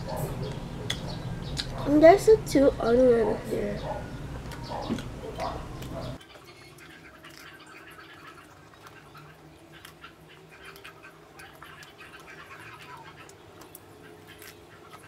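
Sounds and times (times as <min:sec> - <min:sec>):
chewing crunchy bread: 0:04.4 - 0:15.0.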